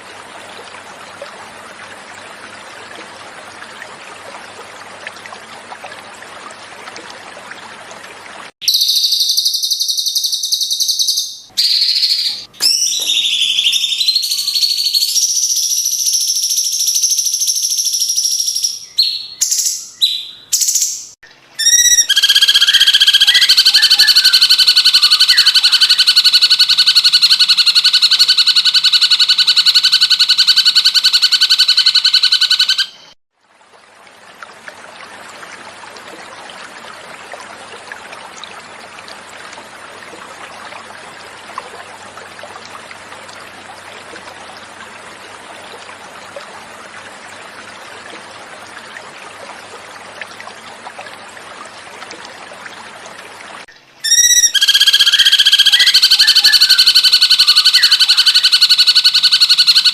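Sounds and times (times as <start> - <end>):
gently flowing water: 0.0 - 59.9
bird song rapid notes: 8.6 - 33.2, 54.0 - 59.9.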